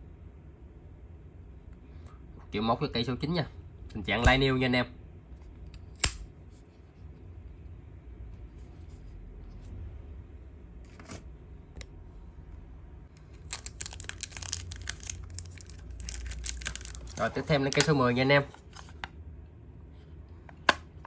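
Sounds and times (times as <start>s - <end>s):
room hum: 0.0s - 21.0s
packaging crinkling and tearing: 13.3s - 18.0s.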